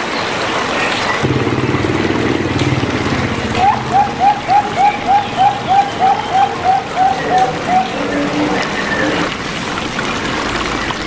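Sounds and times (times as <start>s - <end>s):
dove cooing: 1.2s - 9.4s.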